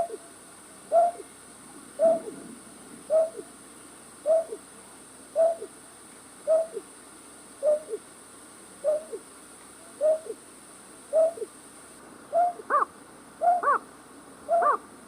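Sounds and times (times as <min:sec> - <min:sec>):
night bird hooting call: 0:00.9 - 0:01.3, 0:02.0 - 0:02.4, 0:03.1 - 0:03.5, 0:04.2 - 0:04.6, 0:05.3 - 0:05.7, 0:06.4 - 0:06.9, 0:07.6 - 0:08.0, 0:08.8 - 0:09.2, 0:09.9 - 0:10.4, 0:11.1 - 0:11.5, 0:12.3 - 0:13.8, 0:14.5 - 0:14.8.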